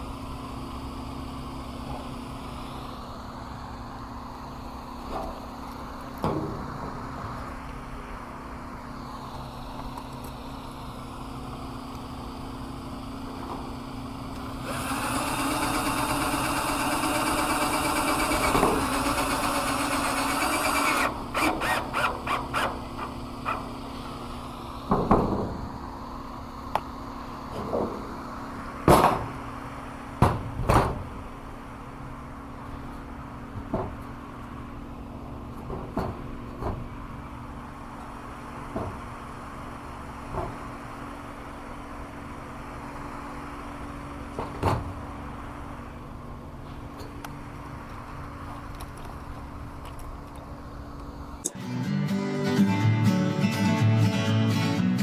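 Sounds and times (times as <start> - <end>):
power drill running: 14.6 - 23.1.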